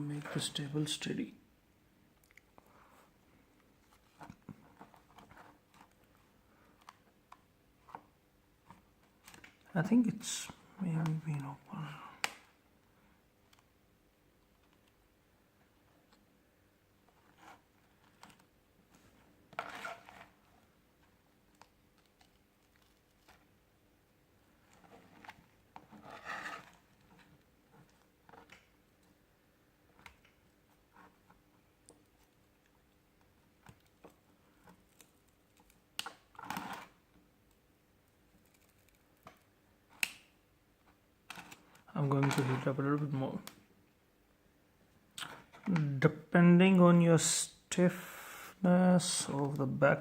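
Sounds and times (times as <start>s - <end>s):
scrape and crackle: 3.8s - 7.0s, 17.1s - 20.7s, 24.6s - 28.6s, 34.6s - 37.0s, 38.3s - 39.4s.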